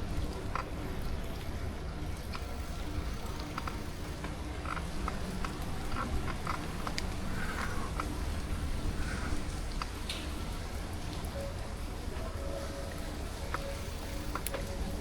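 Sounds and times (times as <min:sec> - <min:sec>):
low rumble of moving bike: 0:00.0 - 0:15.0
frogs croaking: 0:02.3 - 0:10.0, 0:11.6 - 0:15.0.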